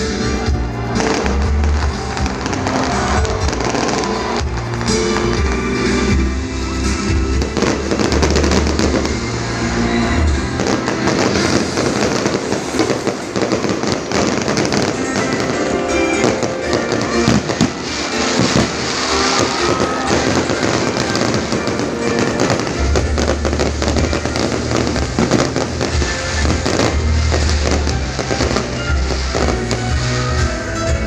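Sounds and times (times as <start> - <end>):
fireworks bursting and crackling: 0.0 - 31.0
loud music with heavy bass: 0.0 - 31.0.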